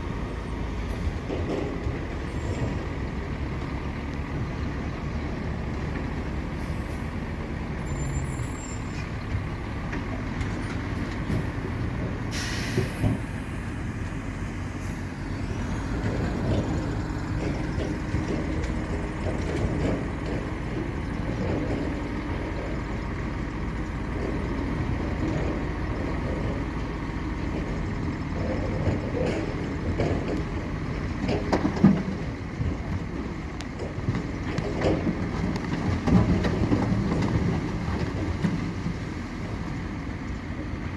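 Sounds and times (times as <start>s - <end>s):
heavy diesel machinery running: 0.0s - 40.9s
air brake hiss: 12.3s - 13.7s.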